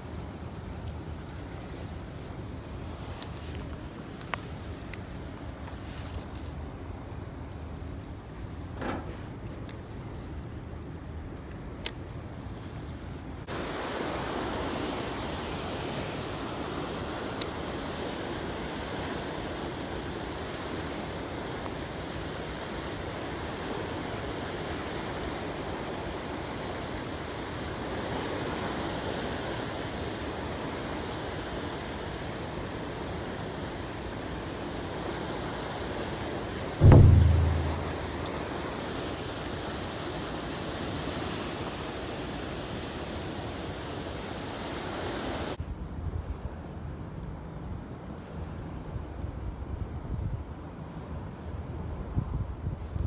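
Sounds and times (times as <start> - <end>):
wind: 0.0 - 53.0
loud low thump: 36.8 - 38.4.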